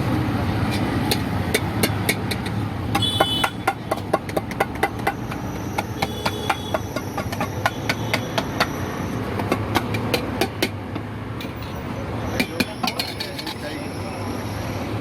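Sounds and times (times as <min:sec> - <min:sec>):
cooking utensils clacking: 0:00.6 - 0:02.6, 0:03.5 - 0:08.8, 0:12.4 - 0:13.8.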